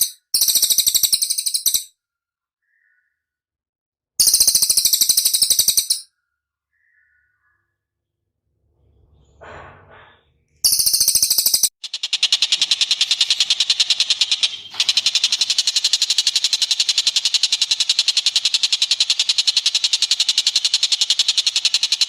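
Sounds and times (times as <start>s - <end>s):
songbird call: 2.6s - 3.3s, 6.7s - 7.8s
songbird trilling: 4.2s - 6.0s, 6.7s - 7.7s.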